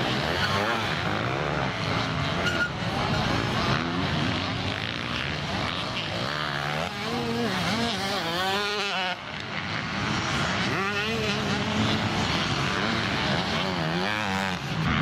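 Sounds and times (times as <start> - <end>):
motocross bike engines: 0.0 - 15.0
single motorbike revving: 0.0 - 15.0.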